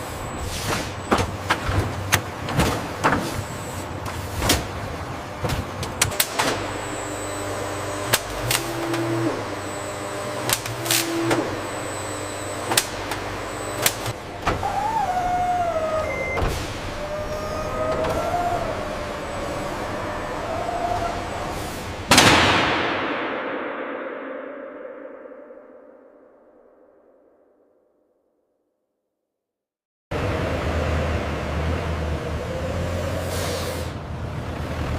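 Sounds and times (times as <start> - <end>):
short motor whines: 6.1 - 22.1
high wavering whine: 6.3 - 16.4, 22.8 - 27.6.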